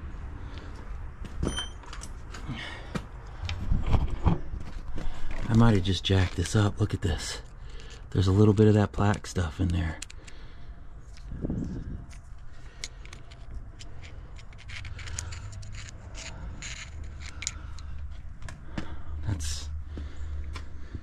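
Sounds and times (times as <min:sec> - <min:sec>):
scrapes and clicks on metal parts: 0:05.2 - 0:10.4, 0:12.1 - 0:18.2.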